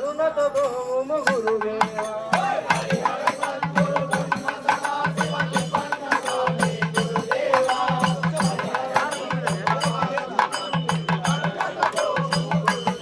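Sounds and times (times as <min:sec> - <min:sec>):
hand drum beats: 0:01.3 - 0:13.0.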